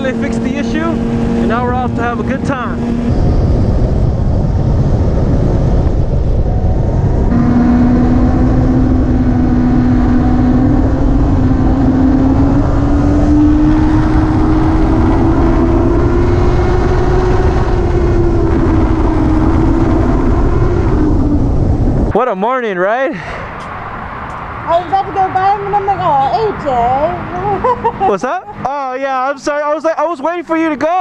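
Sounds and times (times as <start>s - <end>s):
motorcycle engine note rising: 0.0s - 22.2s
wind rushing over microphone: 0.0s - 22.4s.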